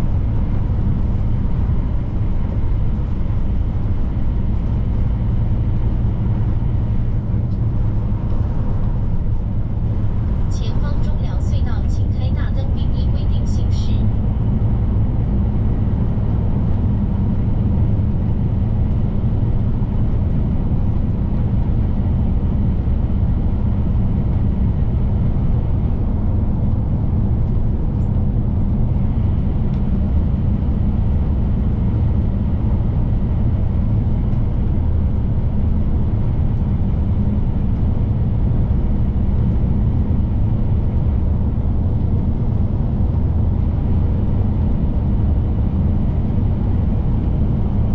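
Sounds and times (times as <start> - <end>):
truck diesel engine droning: 0.0 - 20.0.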